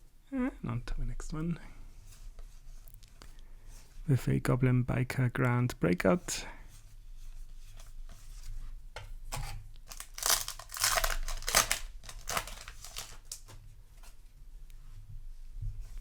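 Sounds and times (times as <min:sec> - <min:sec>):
foil wrapper crinkling and tearing: 0:09.8 - 0:13.6.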